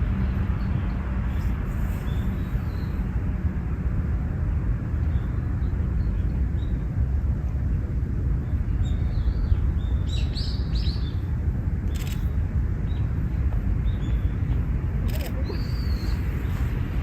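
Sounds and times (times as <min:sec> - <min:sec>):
steady low rumble: 0:00.0 - 0:17.0
faint bird chirps: 0:15.1 - 0:16.7.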